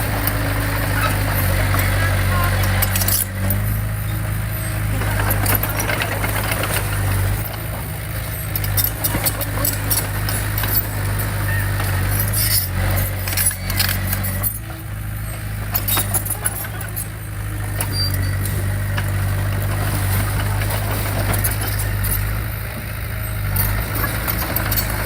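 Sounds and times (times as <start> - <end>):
diesel machinery engine running: 0.0 - 25.0
metallic clanks and rattles: 5.0 - 22.9.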